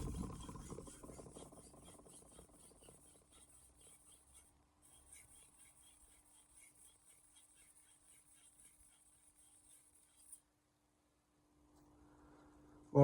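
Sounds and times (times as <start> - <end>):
knife scraping on whetstone: 0.0 - 10.4.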